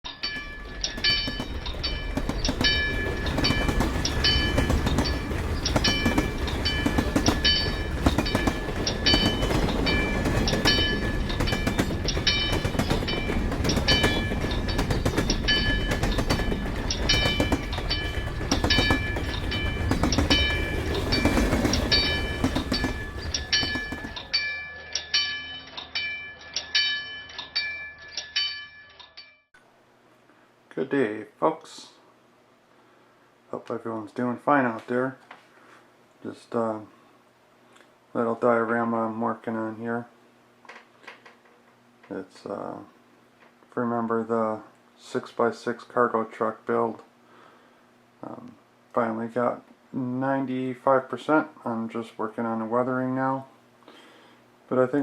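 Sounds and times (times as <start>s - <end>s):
train rumbling past: 0.1s - 25.4s
railroad crossing bell ringing: 0.1s - 29.5s.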